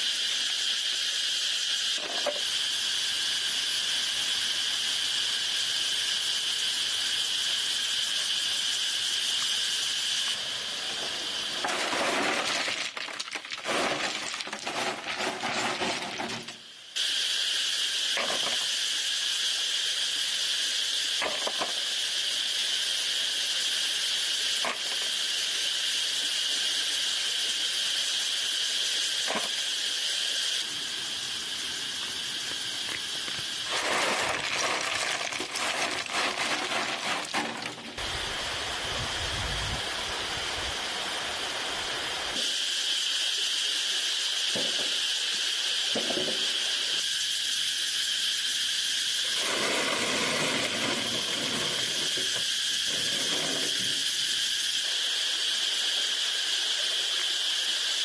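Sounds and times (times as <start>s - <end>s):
high insect chorus: 0.0s - 58.0s
rustling and handling noise: 10.9s - 16.6s, 33.7s - 38.0s.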